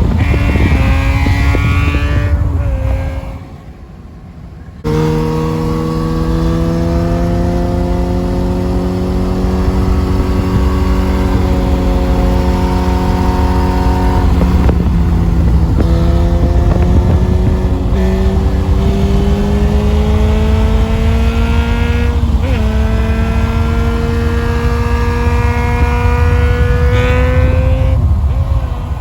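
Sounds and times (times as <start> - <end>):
motorcycle engine running: 0.0 - 3.3, 4.8 - 29.0.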